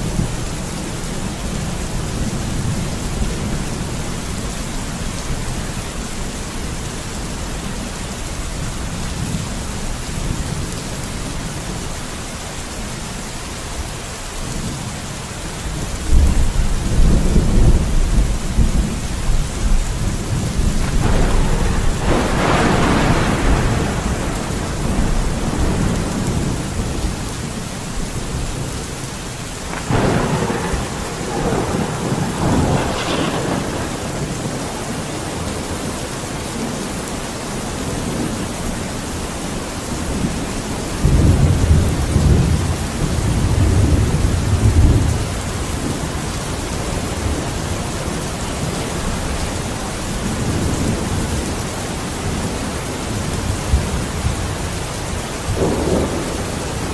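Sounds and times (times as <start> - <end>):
heavy rain: 0.0 - 56.9
rolling thunder: 15.7 - 36.9, 39.9 - 49.5, 53.1 - 56.9.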